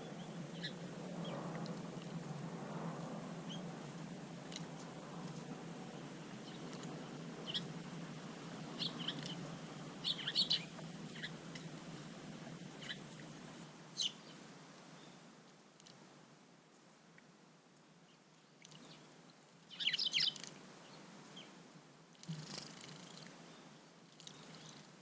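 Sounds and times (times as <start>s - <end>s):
small birds chirping: 0.0s - 2.2s, 3.4s - 15.2s, 18.1s - 19.1s, 19.7s - 21.6s, 22.2s - 24.9s
low steady hum: 0.0s - 25.0s.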